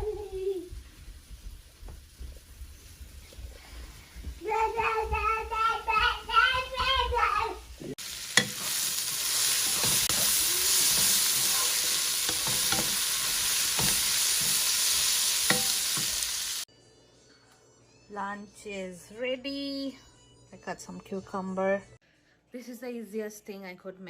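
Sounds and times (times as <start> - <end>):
food sizzling in a frying pan: 7.0 - 16.7.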